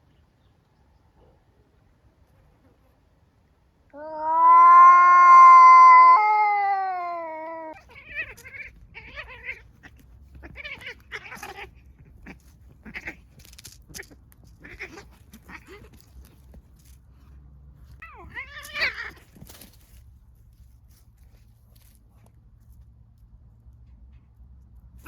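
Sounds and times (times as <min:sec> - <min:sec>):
cat yowling: 0:03.9 - 0:13.2, 0:18.0 - 0:19.2.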